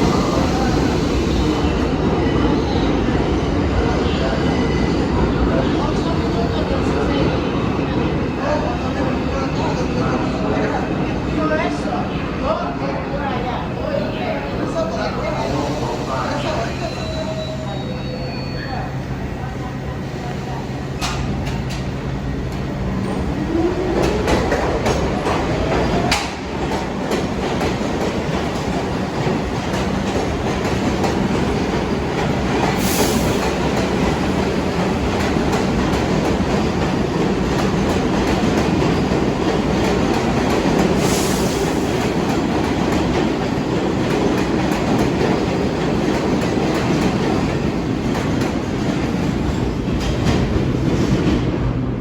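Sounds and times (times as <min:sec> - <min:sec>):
subway motor whine: 0:00.0 - 0:04.4
train wheel clatter: 0:23.8 - 0:51.5.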